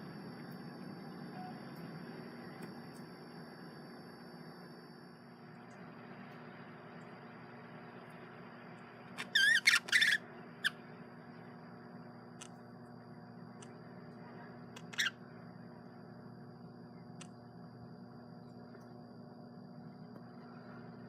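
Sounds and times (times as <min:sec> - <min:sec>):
steady low hum: 0:00.0 - 0:21.0
budgerigar chirping: 0:09.2 - 0:10.2.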